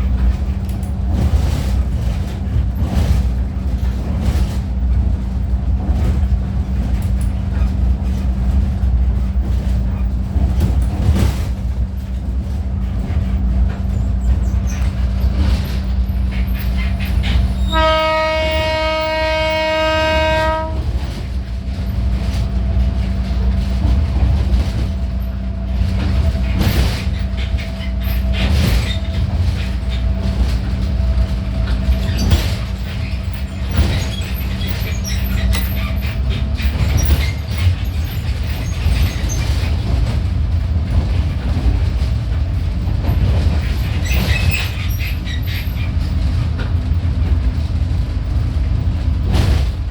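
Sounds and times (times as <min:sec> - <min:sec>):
train rumbling: 0:00.0 - 0:49.9
wheels clicking on rails: 0:00.0 - 0:49.9
train horn: 0:17.6 - 0:21.2.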